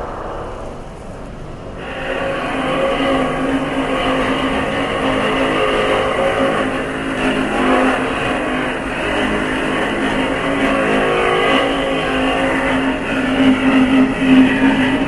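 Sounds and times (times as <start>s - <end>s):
subway train motor whine: 0.0s - 15.0s
train car rumble and rattle: 0.0s - 15.0s.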